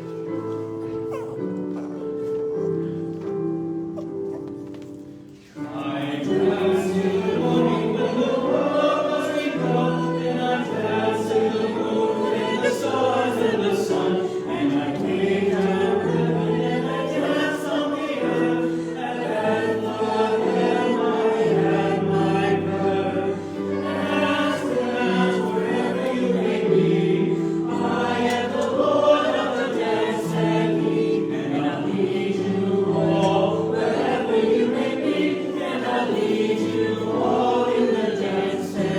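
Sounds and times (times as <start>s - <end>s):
congregation singing a hymn: 0.0s - 38.9s.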